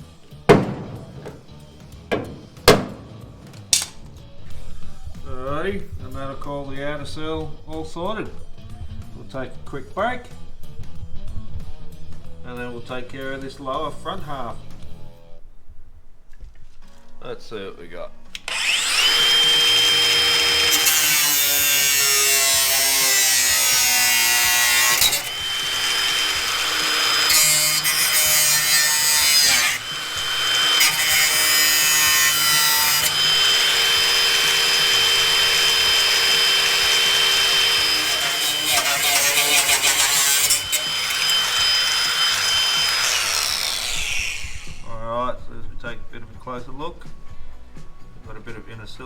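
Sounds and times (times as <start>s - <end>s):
angle grinder grinding metal: 18.4s - 44.9s.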